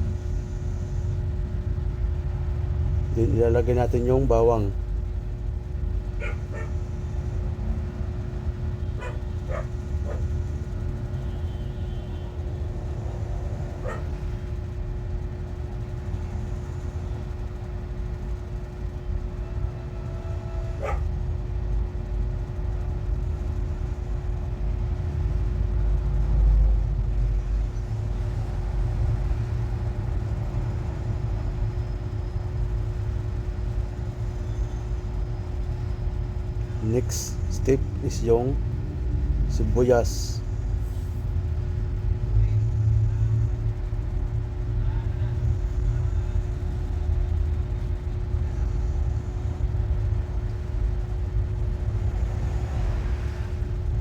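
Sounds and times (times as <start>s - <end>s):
low rumble with hum: 0.0s - 54.0s
dog barks: 6.2s - 7.0s, 8.9s - 10.4s, 13.7s - 14.4s, 20.7s - 21.2s.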